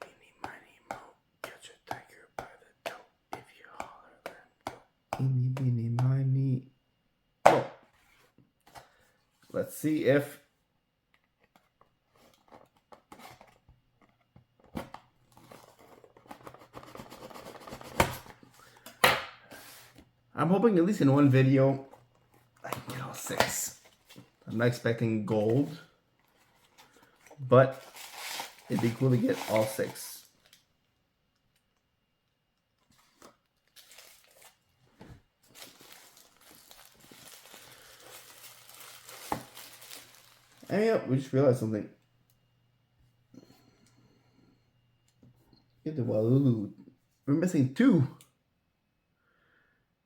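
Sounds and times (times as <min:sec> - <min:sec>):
packaging crinkling and tearing: 0:27.7 - 0:30.6, 0:33.0 - 0:34.7, 0:35.4 - 0:40.8
packaging snapping: 0:27.7 - 0:30.6, 0:35.5 - 0:40.7.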